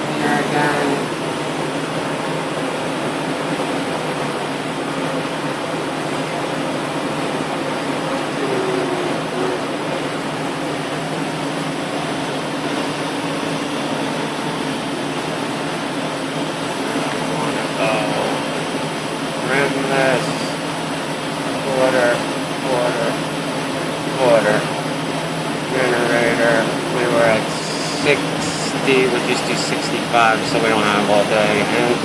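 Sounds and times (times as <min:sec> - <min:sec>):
machinery hum and whir: 0:00.0 - 0:32.0
low drone: 0:08.0 - 0:10.6.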